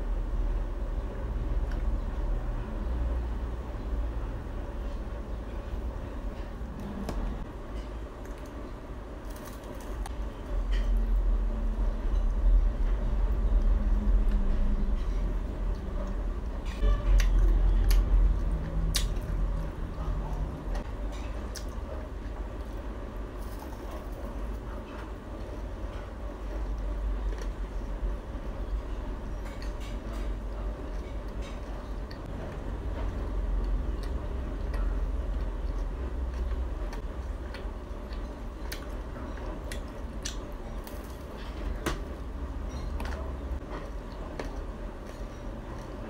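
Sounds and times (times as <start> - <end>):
steady low hum: 0.0 - 46.0
chewing crisp cake: 13.2 - 41.8
chewing crispy food: 29.4 - 41.8.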